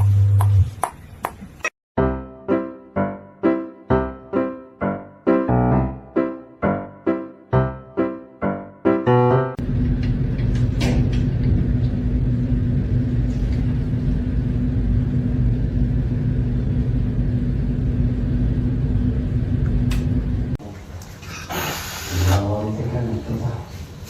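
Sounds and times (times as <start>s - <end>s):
low mechanical rumble: 9.6s - 21.1s
constant hum: 9.6s - 21.5s.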